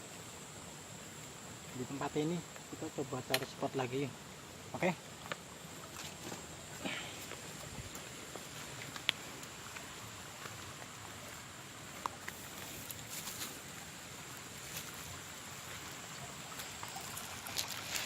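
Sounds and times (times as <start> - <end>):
steady hiss: 0.0 - 18.0
rustles: 5.0 - 18.0.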